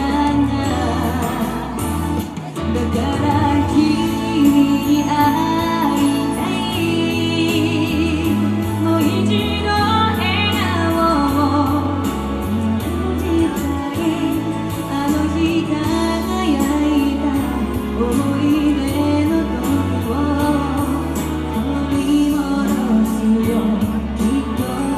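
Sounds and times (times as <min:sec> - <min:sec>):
bass: 0:00.0 - 0:24.9
woman singing: 0:00.0 - 0:24.9.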